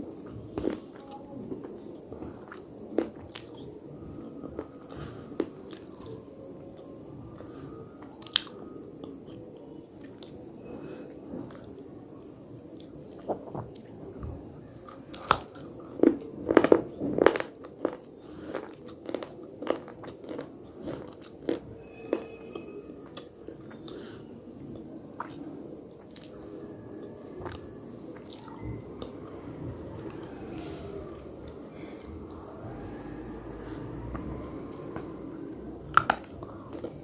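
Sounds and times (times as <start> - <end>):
person crunching brittle food: 14.9 - 22.3.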